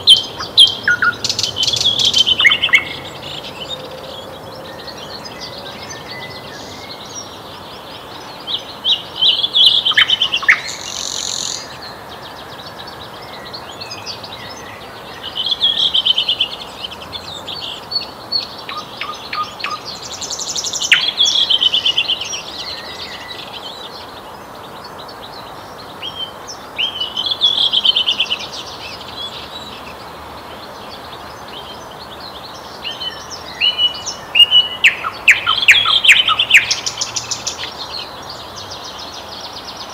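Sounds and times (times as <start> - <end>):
faint background hiss: 0.0 - 39.9
nightingale singing: 0.0 - 39.9.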